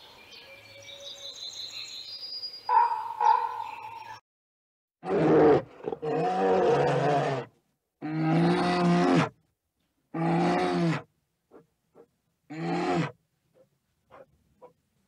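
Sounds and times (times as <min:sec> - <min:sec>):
bear roaring: 0:05.0 - 0:09.3, 0:10.1 - 0:11.1, 0:12.5 - 0:13.2.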